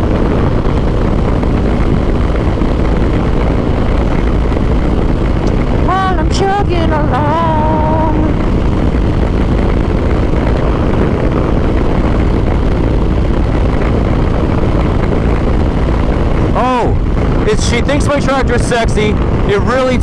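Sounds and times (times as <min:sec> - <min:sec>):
motorcycle cruising: 0:00.0 - 0:20.0
wind rush on microphone: 0:00.0 - 0:20.0.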